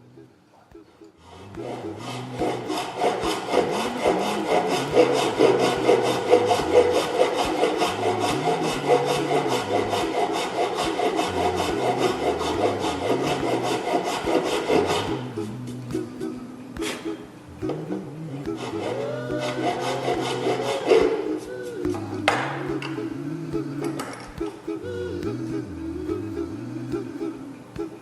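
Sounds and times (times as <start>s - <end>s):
hand saw cutting wood: 1.4s - 16.0s, 18.4s - 21.3s.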